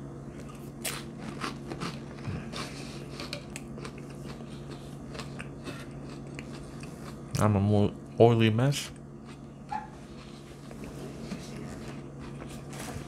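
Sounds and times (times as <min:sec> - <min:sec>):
cracker crunching while chewing: 0:00.4 - 0:07.4.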